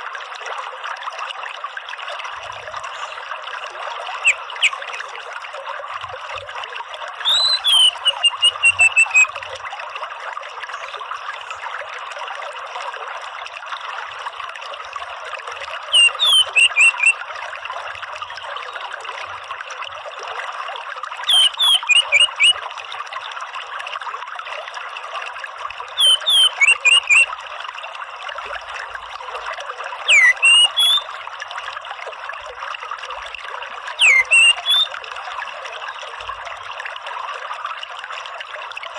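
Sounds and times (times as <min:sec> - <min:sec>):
running water trickling: 0:00.0 - 0:38.9
thrush calling: 0:04.2 - 0:05.1, 0:07.2 - 0:09.3, 0:15.9 - 0:17.2, 0:21.3 - 0:22.6, 0:26.0 - 0:27.3, 0:30.1 - 0:31.1, 0:34.0 - 0:35.0.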